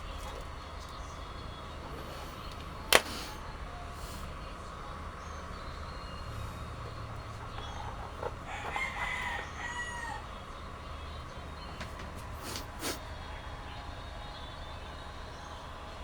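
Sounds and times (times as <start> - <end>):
steady low hum: 0.0 - 16.0
rooster crowing: 7.5 - 10.6.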